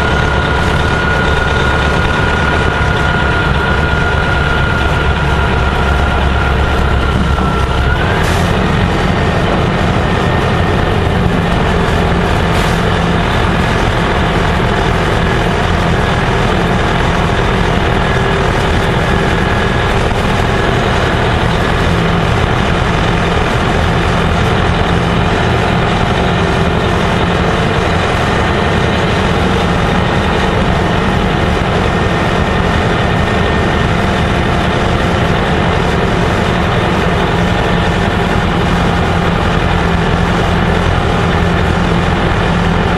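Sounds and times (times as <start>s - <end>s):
bus diesel engine running: 0.0s - 42.9s.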